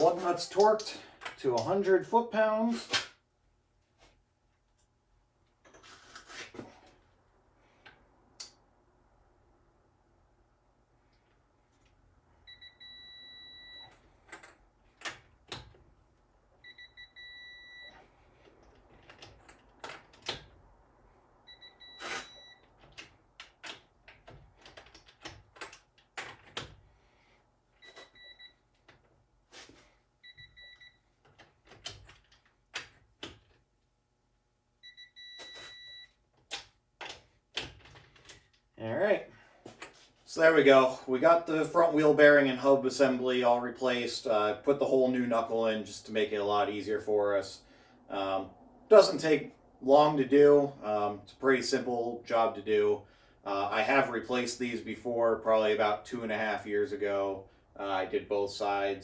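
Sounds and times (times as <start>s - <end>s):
tools clicking and knocking: 22.0s - 26.8s, 36.4s - 38.6s.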